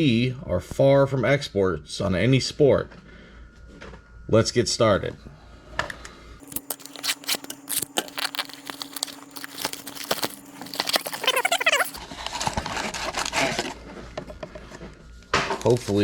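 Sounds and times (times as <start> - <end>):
plastic wrap and cardboard tearing: 6.4 - 13.6.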